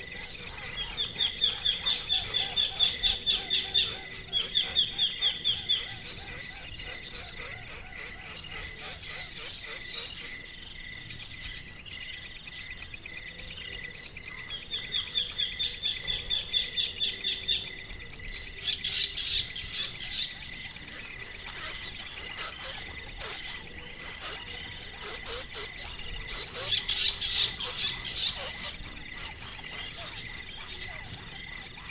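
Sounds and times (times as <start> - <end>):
high-pitched animal chirping: 0.0 - 10.3, 18.7 - 31.9.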